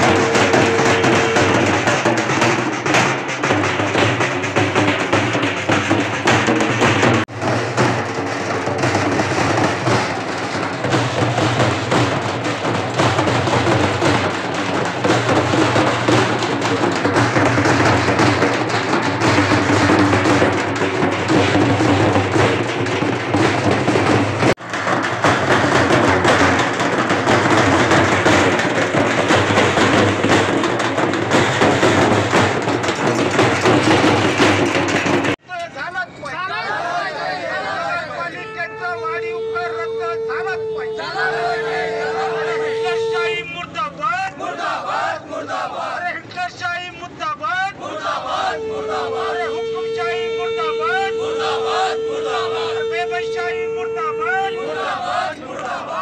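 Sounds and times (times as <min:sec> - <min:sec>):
frame drums beaten with sticks: 0:00.0 - 0:35.5.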